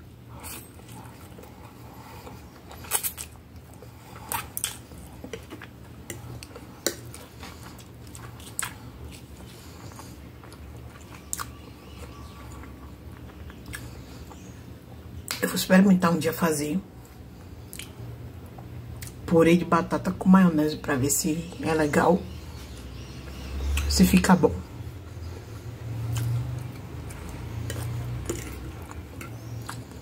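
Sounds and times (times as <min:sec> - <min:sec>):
person chewing food: 0:00.0 - 0:15.4, 0:17.0 - 0:19.2, 0:24.8 - 0:30.0.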